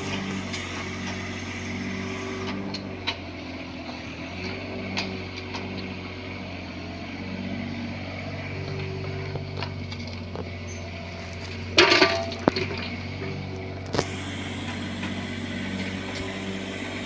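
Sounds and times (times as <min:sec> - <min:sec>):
mini excavator engine running: 0:00.0 - 0:17.0
loud clatter: 0:11.2 - 0:13.0.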